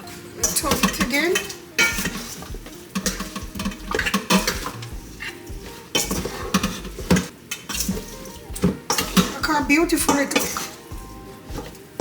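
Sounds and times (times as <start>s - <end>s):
spoon scraping and clinking bowl: 0.4s - 9.4s.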